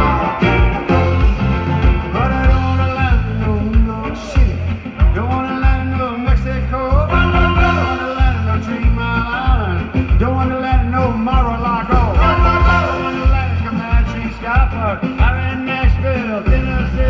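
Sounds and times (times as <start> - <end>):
live band playing rock song: 0.0 - 17.0
person singing: 0.0 - 17.0
pulsing bass beat: 0.0 - 17.0.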